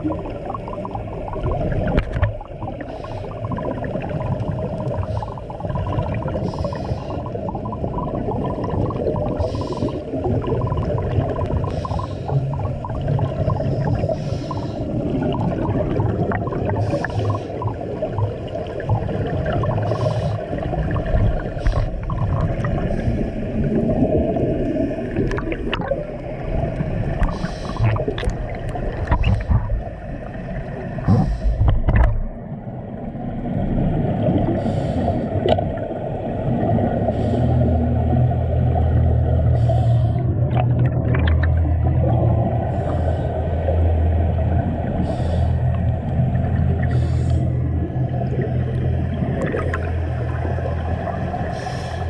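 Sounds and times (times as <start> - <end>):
constant low rumble: 0.0 - 52.0
underwater bubbles gurgling: 0.0 - 52.0.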